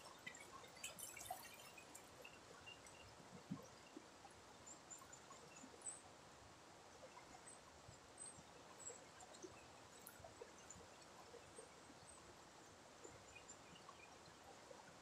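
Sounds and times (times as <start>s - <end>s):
small ticks: 8.2s - 15.0s.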